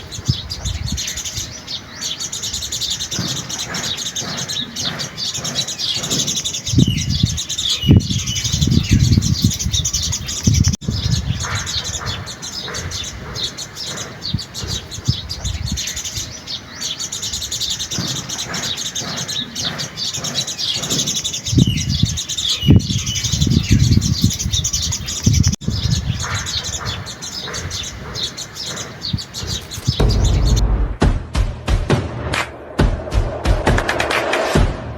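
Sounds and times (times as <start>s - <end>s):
small birds chirping: 0.0s - 30.6s
low rumble: 30.0s - 31.4s.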